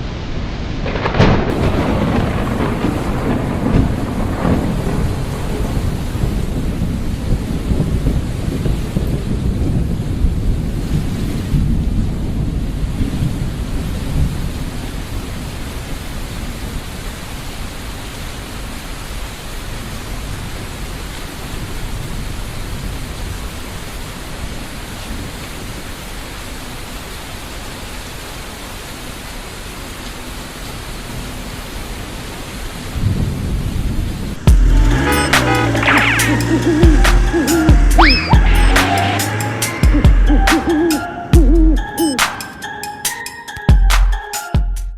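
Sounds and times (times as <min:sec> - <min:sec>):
steady rain falling: 0:00.0 - 0:41.0
low rumble: 0:34.5 - 0:40.7.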